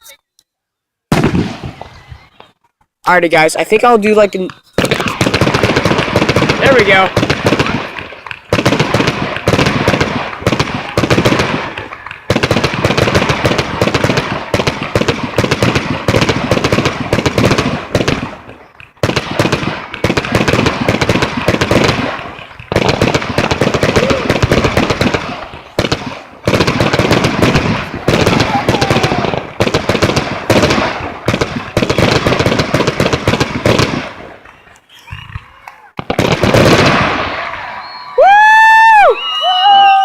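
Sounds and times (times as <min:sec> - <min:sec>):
fireworks bangs and crackles: 0:01.1 - 0:02.7, 0:03.4 - 0:40.0.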